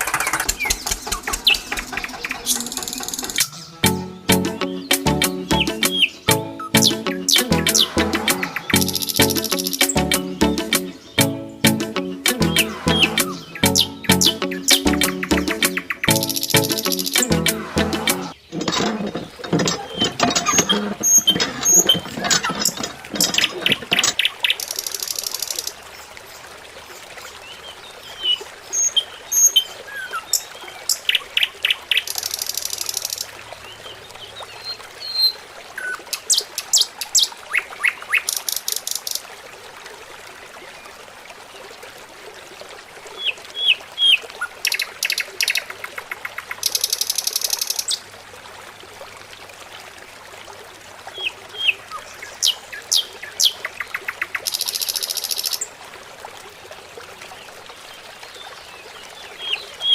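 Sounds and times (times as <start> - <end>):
small birds chirping and trilling: 0.0 - 17.4.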